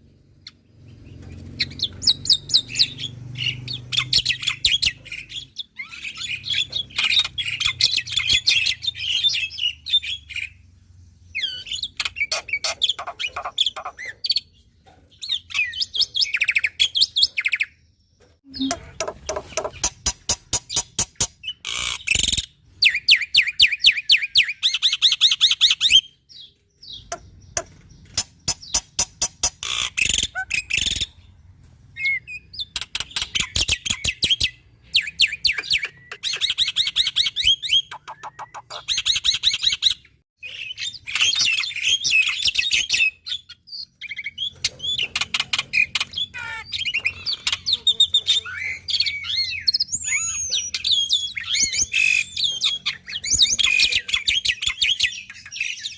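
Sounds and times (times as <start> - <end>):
starling trills and chattering: 11.4 - 14.3, 18.5 - 22.5, 44.1 - 55.5.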